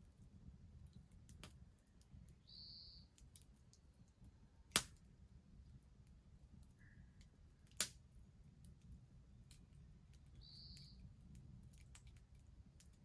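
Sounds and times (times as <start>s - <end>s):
bonfire crackling: 0.2s - 13.0s
burning wood popping: 4.7s - 5.1s, 8.6s - 13.0s.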